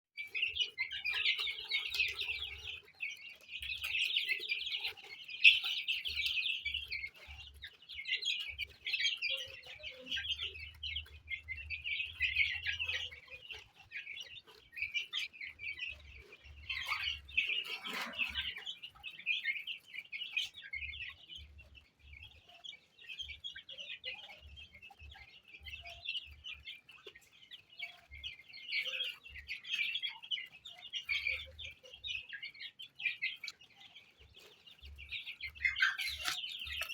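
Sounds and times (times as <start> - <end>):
chicks peeping: 0.2 - 36.9.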